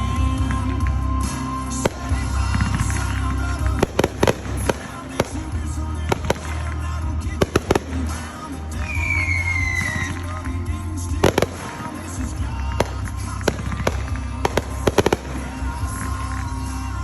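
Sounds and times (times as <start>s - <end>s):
fireworks bangs: 0.0s - 17.0s
falling firework whistle: 7.5s - 10.4s.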